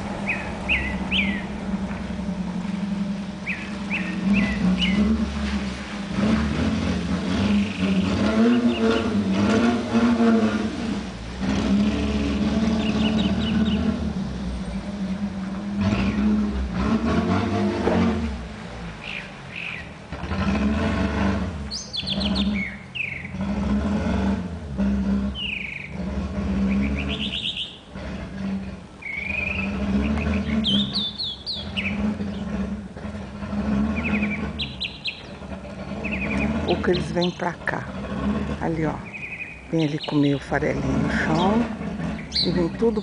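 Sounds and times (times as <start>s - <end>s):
low engine hum: 0.0s - 43.0s
bird chirping: 0.2s - 1.6s, 3.4s - 5.2s, 12.3s - 14.9s, 19.0s - 20.0s, 21.7s - 23.4s, 25.3s - 26.0s, 26.7s - 27.9s, 29.0s - 32.6s, 33.9s - 38.0s, 38.6s - 43.0s.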